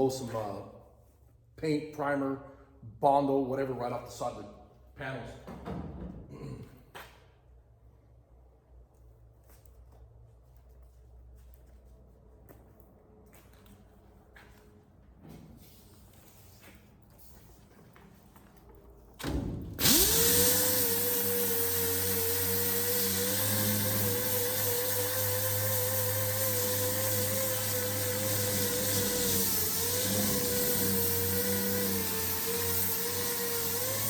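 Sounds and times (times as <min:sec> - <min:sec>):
body sander sanding metal: 0:19.8 - 0:34.0.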